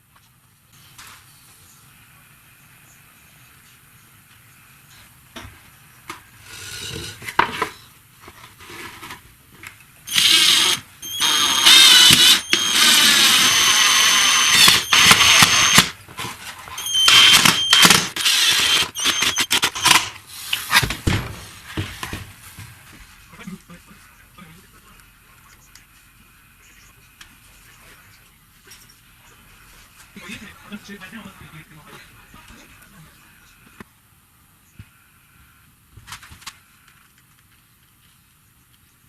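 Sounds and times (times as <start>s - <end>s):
power tool whining: 10.1s - 16.0s, 16.8s - 20.1s.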